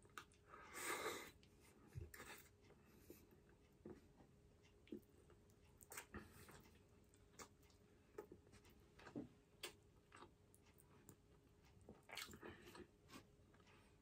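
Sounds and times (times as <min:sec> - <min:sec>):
chewing mouth clicks and smacks: 0:11.9 - 0:12.9.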